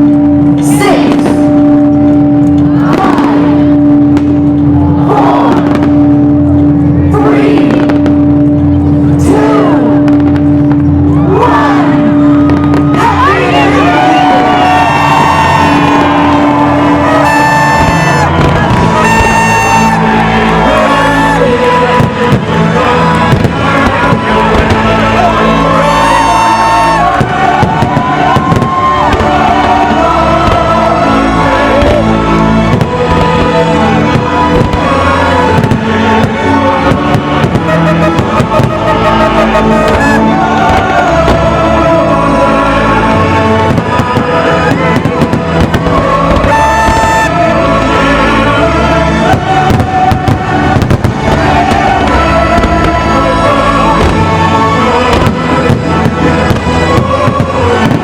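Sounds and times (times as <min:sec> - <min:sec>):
fireworks bursting: 0:00.0 - 0:06.9, 0:12.2 - 0:58.0
loud show music: 0:00.0 - 0:58.0
crowd cheering and whooping: 0:12.0 - 0:22.1, 0:24.5 - 0:32.4, 0:36.9 - 0:42.2, 0:42.9 - 0:47.6.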